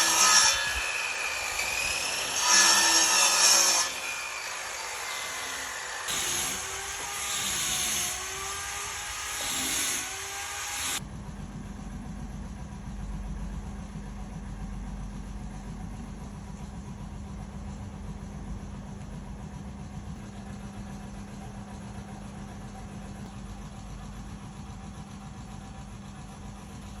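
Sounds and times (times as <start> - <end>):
steady machine hum: 11.0 - 27.0.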